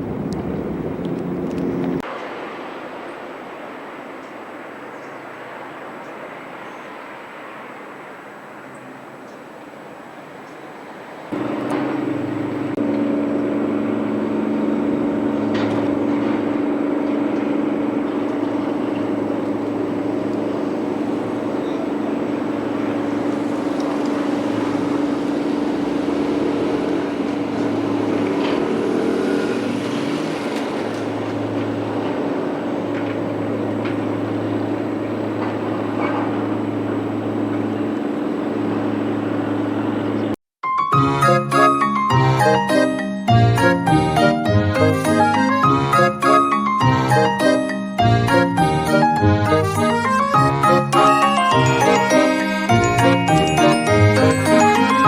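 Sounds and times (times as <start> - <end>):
engine running steadily: 0.0 - 2.1, 11.3 - 40.4, 42.3 - 55.0.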